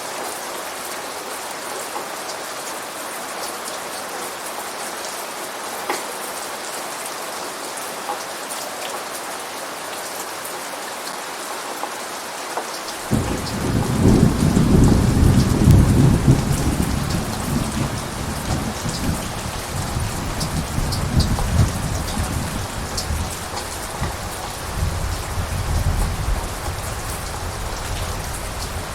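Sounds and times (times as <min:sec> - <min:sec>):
heavy rain: 0:00.0 - 0:28.9
rain drop ticks: 0:12.9 - 0:28.9
rumble of thunder: 0:13.0 - 0:28.9.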